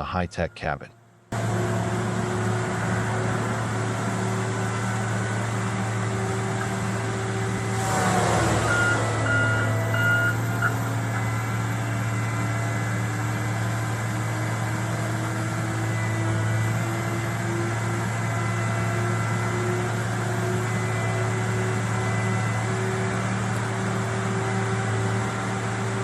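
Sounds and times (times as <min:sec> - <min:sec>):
harvester engine running: 0:01.3 - 0:26.0
short beeps: 0:08.6 - 0:11.4.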